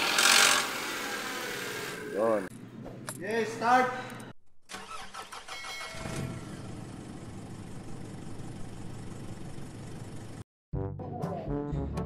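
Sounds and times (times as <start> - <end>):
car engine starting and idling: 4.7 - 10.4.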